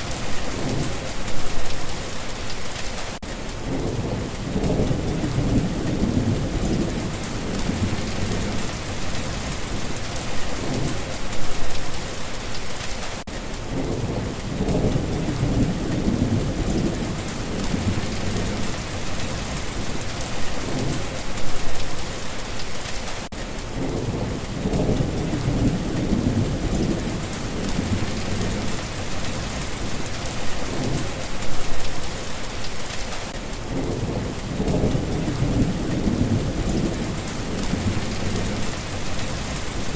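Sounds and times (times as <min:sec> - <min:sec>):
steady rain falling: 0:00.0 - 0:39.9
low thunder rumbling: 0:03.6 - 0:11.6, 0:13.7 - 0:21.8, 0:23.7 - 0:31.7, 0:33.7 - 0:39.9.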